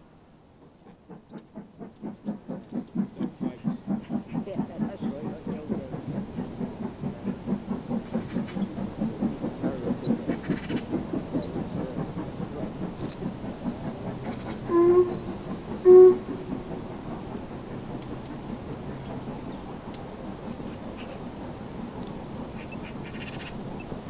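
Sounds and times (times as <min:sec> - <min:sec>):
steam train passing: 0:00.0 - 0:24.0
train whistle hoots: 0:14.4 - 0:16.8.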